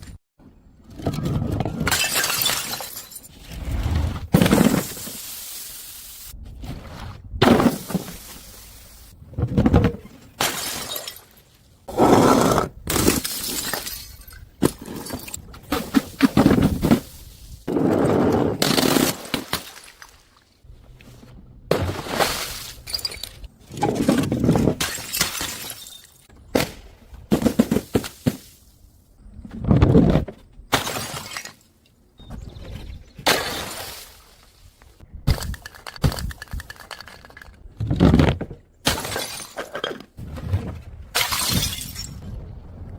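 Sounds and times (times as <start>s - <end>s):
glass bottles smashing: 1.9s - 3.3s, 10.4s - 11.4s, 13.0s - 15.4s, 22.9s - 23.4s, 24.8s - 26.3s, 38.9s - 40.0s, 41.2s - 42.2s.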